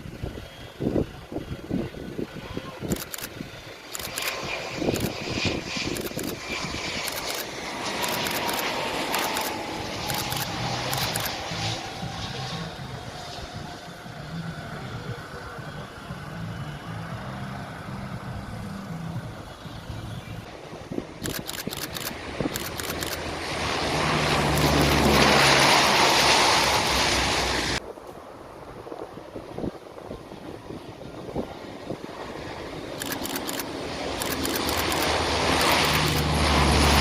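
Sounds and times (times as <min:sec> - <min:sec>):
aircraft engine rushing: 0:00.0 - 0:37.0.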